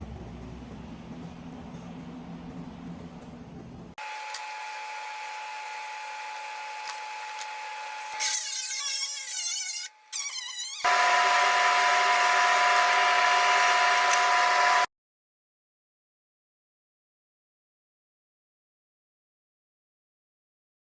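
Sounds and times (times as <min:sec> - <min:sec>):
power tools whining on metal: 0:04.0 - 0:14.9.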